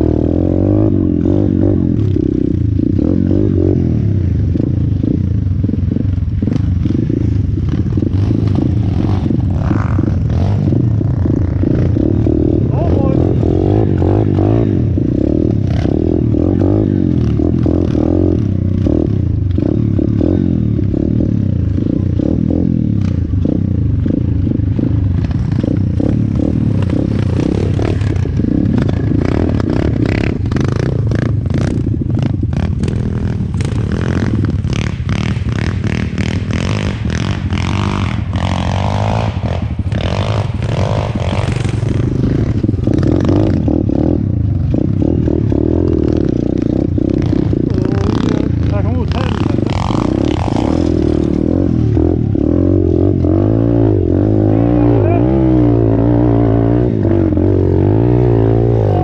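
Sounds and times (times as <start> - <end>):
pit bike engine revving: 0.0 - 59.0
bike rattling on rough ground: 24.2 - 52.3.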